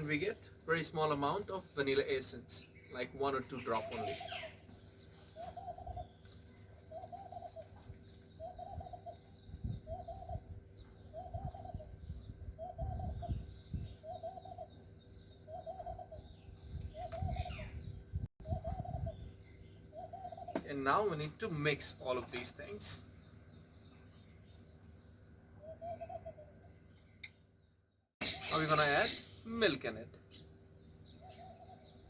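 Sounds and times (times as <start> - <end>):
bird cooing: 3.7 - 4.6, 5.2 - 19.3, 19.9 - 20.7, 25.5 - 26.8, 31.1 - 32.0.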